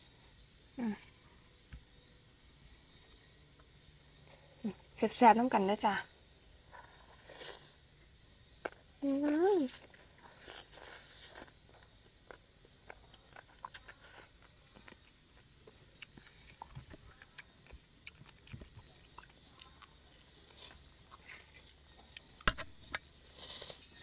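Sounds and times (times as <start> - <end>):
mouth chewing food: 8.6 - 22.5.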